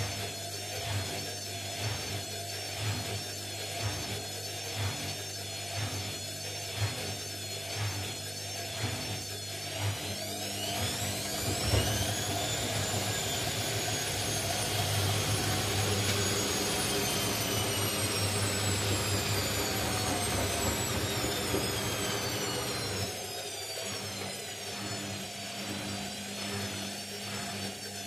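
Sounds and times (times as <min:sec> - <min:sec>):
washing machine spin whine: 0:00.0 - 0:28.0.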